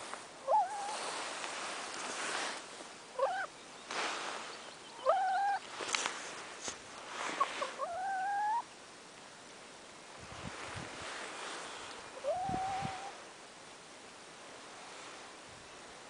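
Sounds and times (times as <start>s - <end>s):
hen making squeaky calls: 3.2s - 3.5s, 4.9s - 5.6s, 7.4s - 8.7s.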